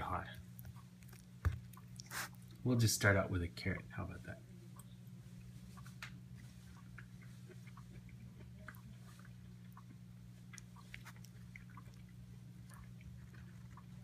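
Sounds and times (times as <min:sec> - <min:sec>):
steady low hum: 0:00.0 - 0:14.0
chewing mouth clicks: 0:00.5 - 0:02.6, 0:04.8 - 0:14.0.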